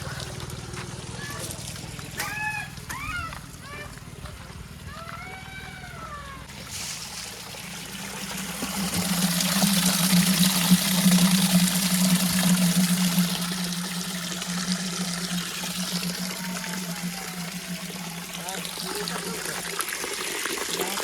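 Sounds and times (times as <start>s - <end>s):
rushing pouring noise: 6.5s - 21.0s
heavy machine engine hum: 7.5s - 19.8s.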